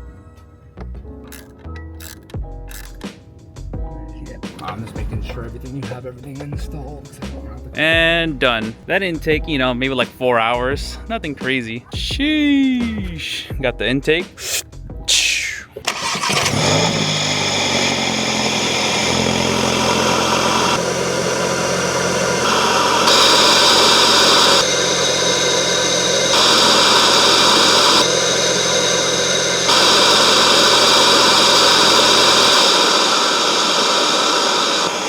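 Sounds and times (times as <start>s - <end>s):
intake and turbo hiss: 14.3s - 35.0s
high turbo whistle: 15.2s - 35.0s
car engine idling: 15.8s - 35.0s.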